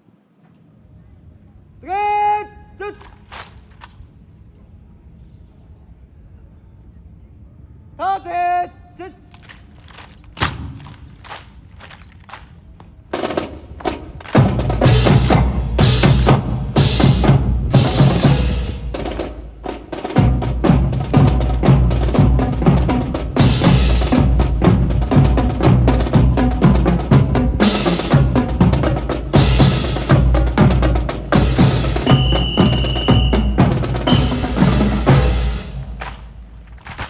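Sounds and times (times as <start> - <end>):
snare drum rolls: 2.9 - 3.9, 9.4 - 37.0.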